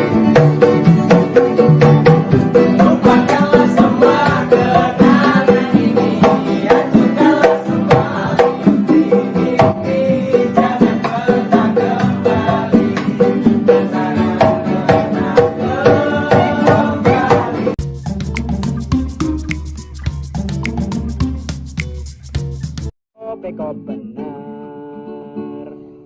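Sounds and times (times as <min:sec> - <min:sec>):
percussion beat: 0:00.0 - 0:22.9
plucked-string melody: 0:23.2 - 0:26.0.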